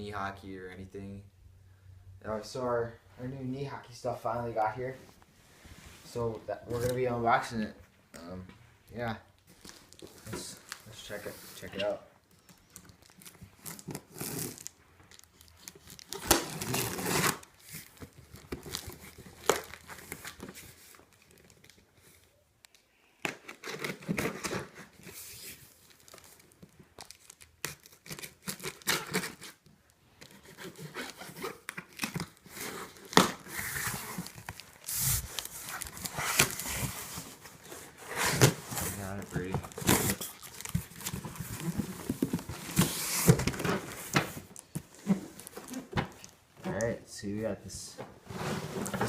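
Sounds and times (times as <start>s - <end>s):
packaging tearing and crinkling: 12.4s - 21.8s, 23.4s - 29.6s, 30.2s - 46.3s.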